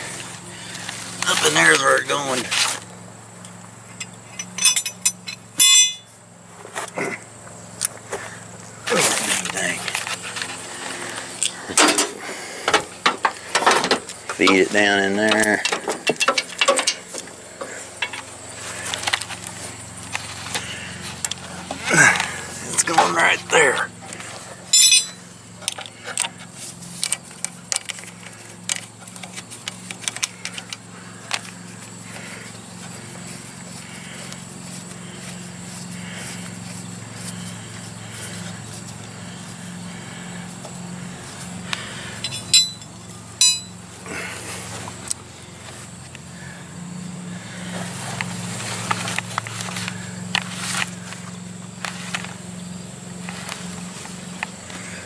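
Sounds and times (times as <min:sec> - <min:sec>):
steady low hum: 0:00.0 - 0:55.0
metal hand tools clinking: 0:04.0 - 0:06.1, 0:13.6 - 0:18.3, 0:24.7 - 0:26.3, 0:42.2 - 0:43.8
metallic clicks of wrenches and fittings: 0:04.0 - 0:06.1, 0:15.2 - 0:19.4, 0:24.7 - 0:26.4, 0:42.2 - 0:43.7.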